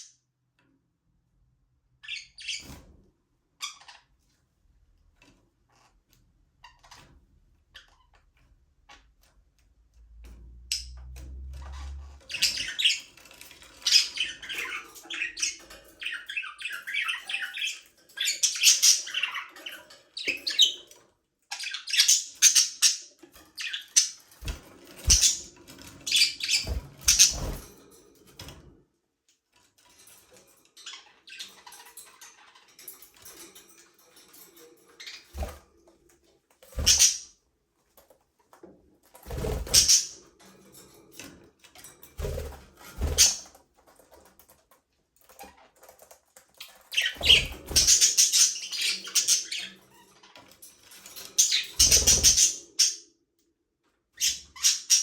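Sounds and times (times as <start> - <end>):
budgerigars chirping and chattering: 11.6 - 27.7, 36.8 - 37.3, 39.3 - 40.2, 42.3 - 43.6, 46.6 - 53.0, 54.2 - 55.0.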